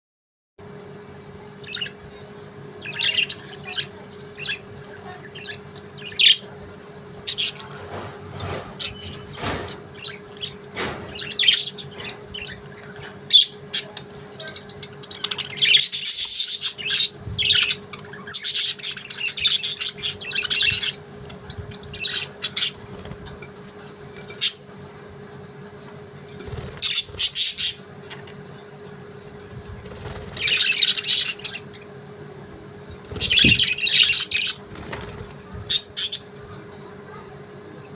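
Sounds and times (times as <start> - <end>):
faint hum: 0.6 - 37.9
budgerigars chirping: 2.8 - 6.6, 7.2 - 23.4, 26.5 - 27.9, 29.8 - 31.9, 33.0 - 36.3.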